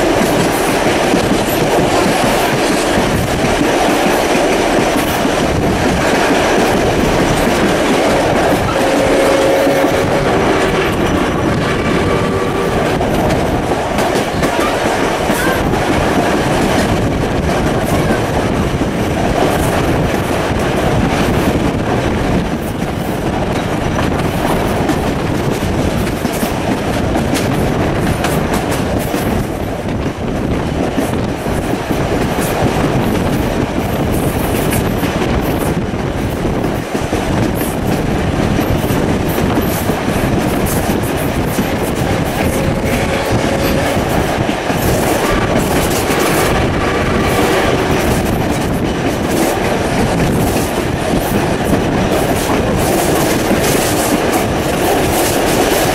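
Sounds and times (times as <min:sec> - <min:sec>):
clickety-clack of rail joints: 0:00.0 - 0:55.9
train wheels rumbling: 0:00.0 - 0:55.9
wind noise: 0:00.0 - 0:55.9
pitched tone: 0:07.3 - 0:13.2.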